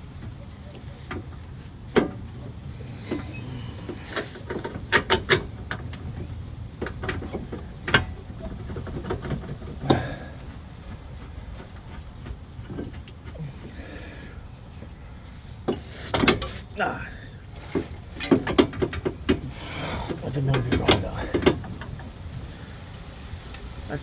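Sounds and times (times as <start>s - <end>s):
metal clanks and knocks: 1.0s - 13.8s, 15.6s - 16.7s, 17.5s - 22.3s.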